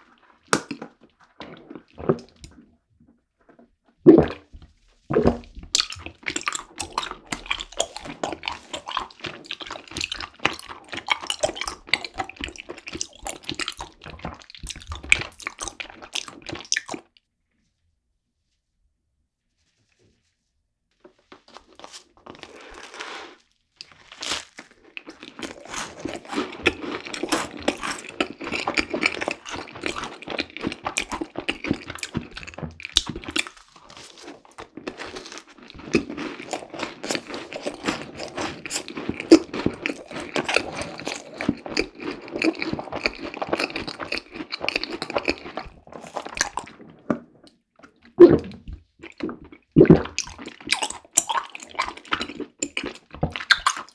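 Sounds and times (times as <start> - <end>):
chewing: 5.2 - 17.2, 21.4 - 53.9
crisp bite of macaron: 21.5 - 53.9.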